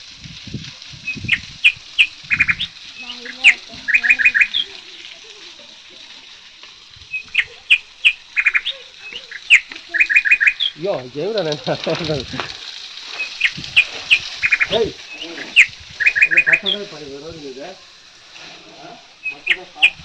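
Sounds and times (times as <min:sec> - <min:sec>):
small bird chirping: 0:01.0 - 0:05.8, 0:07.0 - 0:10.9, 0:12.6 - 0:17.0, 0:19.2 - 0:20.0.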